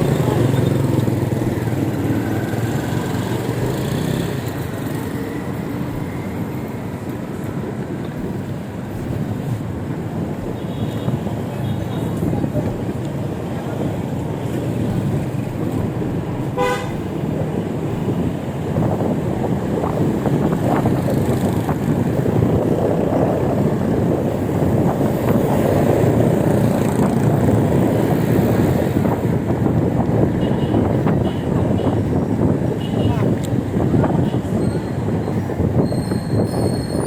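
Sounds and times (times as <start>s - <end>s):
road traffic noise: 0.0s - 37.0s
wind: 0.0s - 37.0s
vehicle horn toot: 16.6s - 17.0s.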